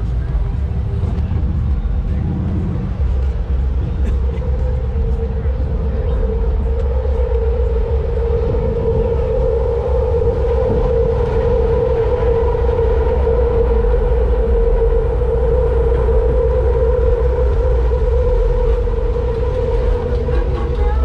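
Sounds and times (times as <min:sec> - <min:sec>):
train on elevated track: 0:00.0 - 0:21.0.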